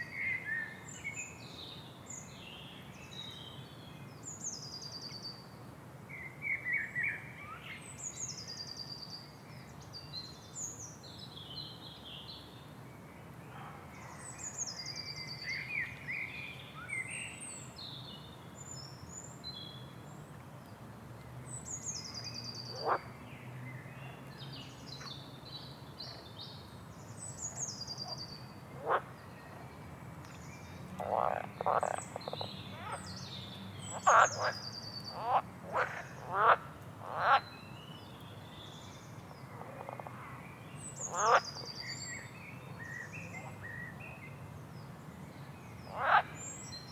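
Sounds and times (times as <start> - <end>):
songbirds singing: 21.4 - 46.9
frogs croaking: 22.7 - 23.1, 28.8 - 29.1, 31.0 - 33.0, 33.9 - 37.4, 41.0 - 41.6, 45.9 - 46.5.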